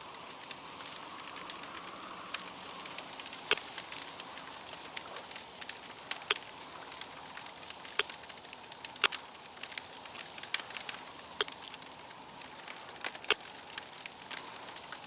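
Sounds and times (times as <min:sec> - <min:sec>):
wood fire crackling and popping: 0:00.1 - 0:15.0.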